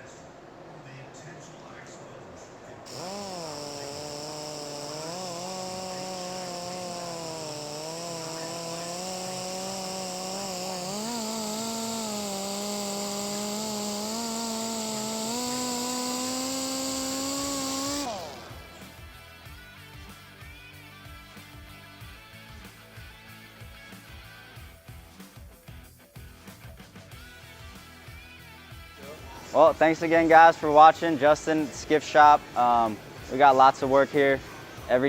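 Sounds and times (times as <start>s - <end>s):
polishing pad hiss on surface: 2.9s - 18.6s
electric polisher motor whine: 2.9s - 18.8s.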